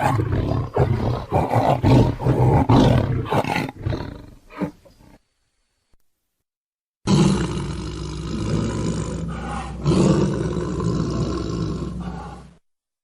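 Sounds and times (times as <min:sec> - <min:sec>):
big cat roaring: 0:00.0 - 0:04.8, 0:07.1 - 0:12.6.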